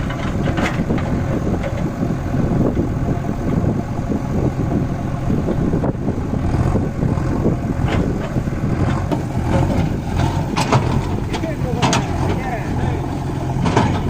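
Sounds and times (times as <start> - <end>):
knocks and rattles: 0.0 - 2.0, 7.8 - 14.0
tractor diesel engine running: 0.0 - 14.0.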